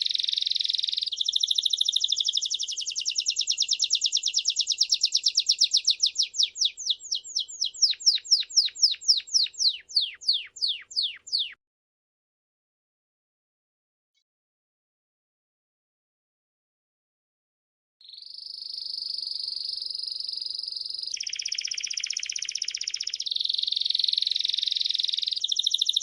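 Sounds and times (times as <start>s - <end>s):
songbird singing: 0.0s - 11.6s, 18.0s - 26.0s.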